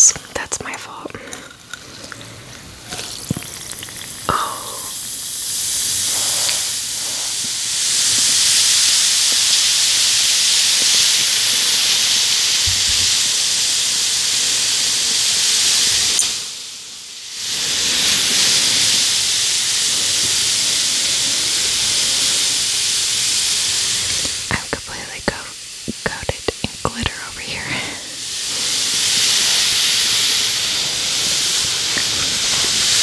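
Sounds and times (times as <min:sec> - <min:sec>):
bath bomb fizzing in water: 0:02.0 - 0:13.3.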